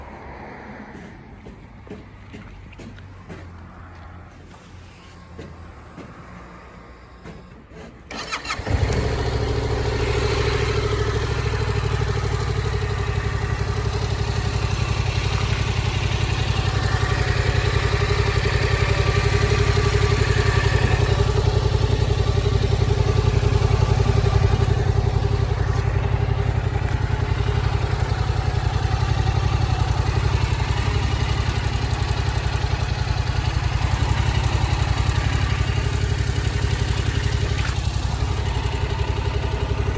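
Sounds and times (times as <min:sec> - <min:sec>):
motorcycle starter turning over: 0:08.1 - 0:11.1
motorcycle engine idling: 0:08.1 - 0:39.9.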